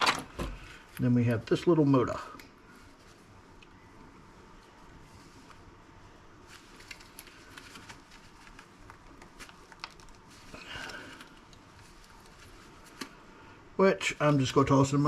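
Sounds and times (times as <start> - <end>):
rustling scrape: 6.4 - 13.2.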